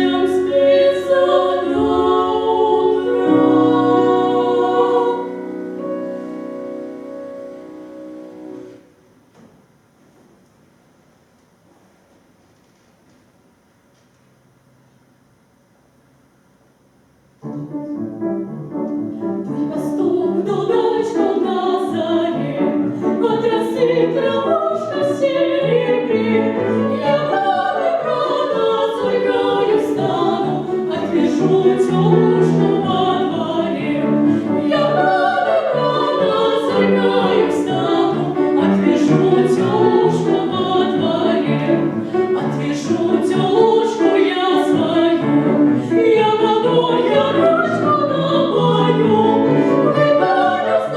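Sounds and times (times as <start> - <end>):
operatic singing: 0.0 - 5.9, 19.1 - 50.9
musical accompaniment: 0.0 - 9.0, 17.4 - 50.9.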